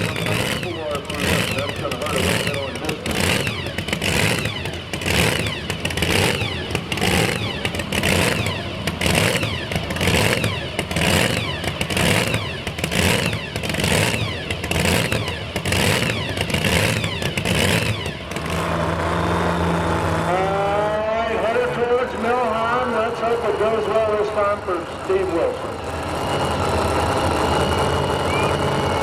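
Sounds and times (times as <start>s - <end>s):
announcer speaking: 0.0s - 3.2s, 20.3s - 25.8s
truck engine surging under load: 0.0s - 29.0s.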